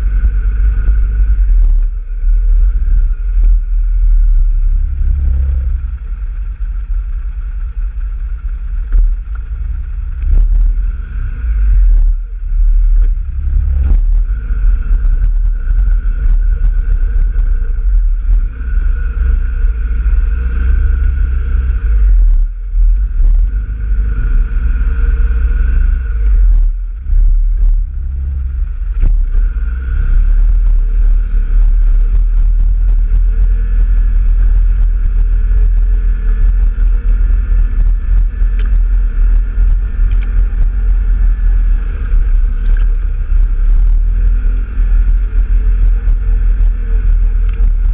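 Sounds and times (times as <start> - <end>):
off-road vehicle engine: 0.0 - 47.9
wind rumble on microphone: 0.0 - 47.9.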